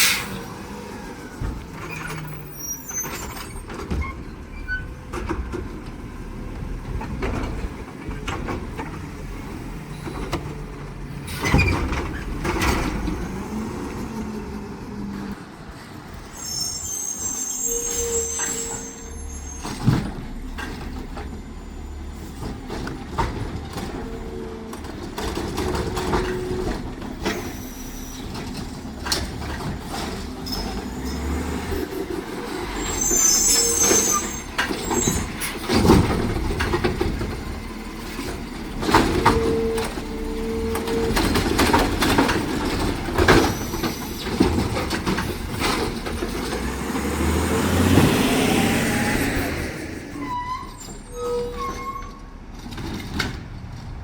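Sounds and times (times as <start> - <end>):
brief high squeals: 2.0 - 3.6, 16.4 - 20.0, 32.8 - 35.3, 50.1 - 52.3
garbage truck engine running: 18.2 - 51.1.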